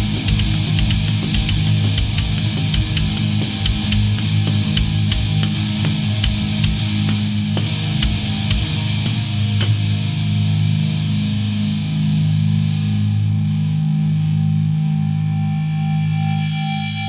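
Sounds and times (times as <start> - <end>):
drum hit: 0.0 - 9.9
distorted electric guitar chord: 0.0 - 17.0.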